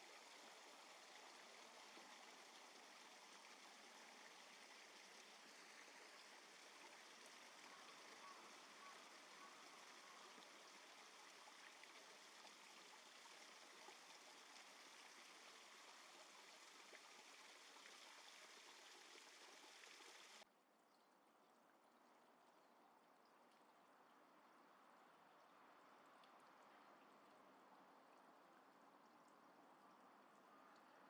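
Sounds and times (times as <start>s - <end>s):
flowing stream water: 0.0s - 20.5s.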